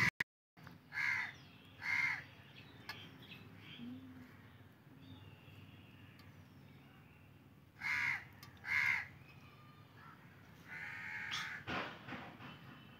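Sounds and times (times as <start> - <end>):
bird calling loudly: 7.8 - 9.1.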